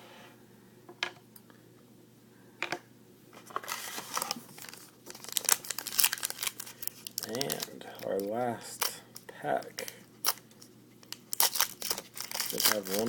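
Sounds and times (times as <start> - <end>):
card pack wrapper tearing: 3.6 - 9.0, 9.6 - 13.0.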